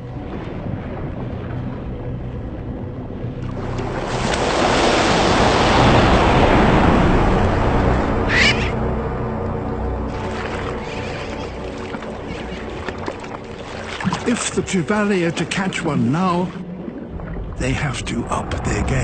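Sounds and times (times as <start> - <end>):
sea water splashing: 0.0 - 19.0
steady music: 0.0 - 19.0
high rising seabird cry: 8.2 - 8.8, 10.1 - 12.8.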